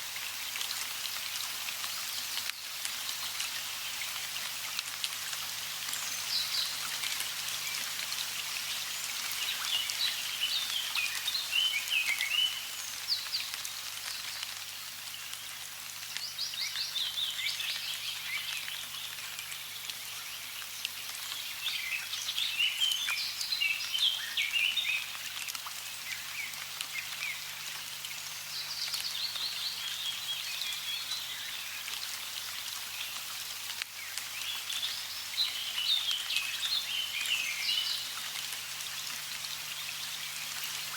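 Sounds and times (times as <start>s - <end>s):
running water rushing: 0.0s - 40.9s
songbirds chirping: 5.5s - 32.0s, 33.9s - 40.9s.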